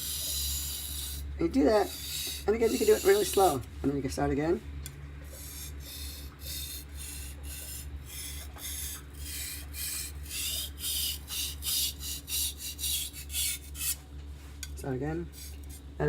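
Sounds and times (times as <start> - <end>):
knife scraping on whetstone: 0.0 - 3.7, 5.3 - 14.0, 15.4 - 15.9.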